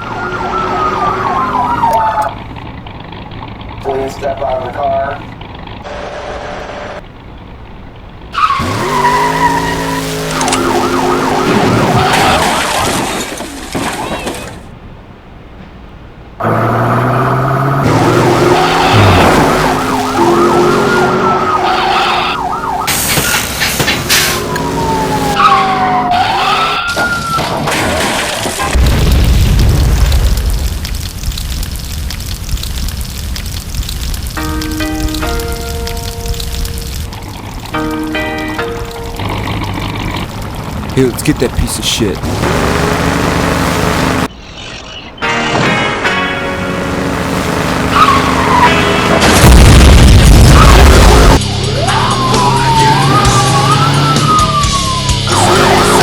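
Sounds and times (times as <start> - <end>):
police siren yelping: 0.0 - 2.4, 8.4 - 12.9, 17.8 - 27.6, 46.5 - 49.6, 50.2 - 56.0
car engine revving: 0.0 - 12.9, 16.4 - 27.0, 36.3 - 44.4, 45.2 - 56.0
explosion boom: 28.7 - 31.1, 49.2 - 51.4.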